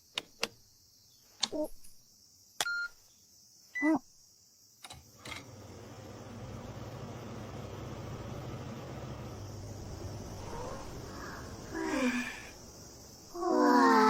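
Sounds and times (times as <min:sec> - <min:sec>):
air conditioner hum and whoosh: 0:05.4 - 0:13.3.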